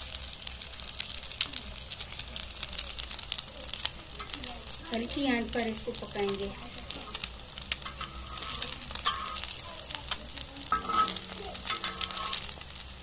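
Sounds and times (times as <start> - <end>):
bread sizzling and popping in oil: 0.0 - 13.0
metal spatula scraping a griddle: 4.2 - 5.1, 6.3 - 12.9.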